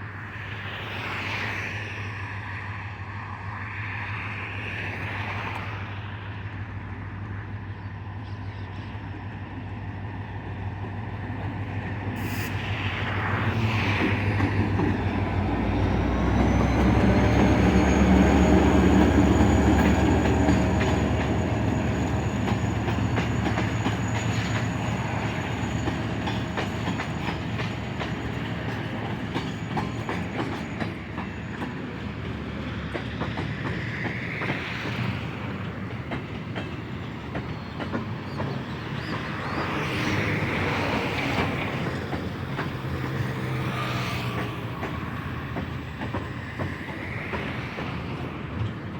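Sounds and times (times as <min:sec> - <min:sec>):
diesel locomotive engine: 0:00.0 - 0:48.9
train wheels clacking over rail joints: 0:14.0 - 0:48.9.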